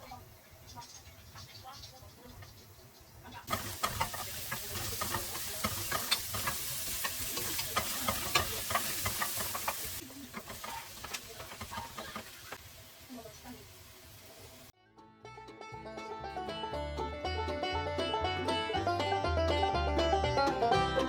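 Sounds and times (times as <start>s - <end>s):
food sizzling in hot oil: 3.4s - 14.7s.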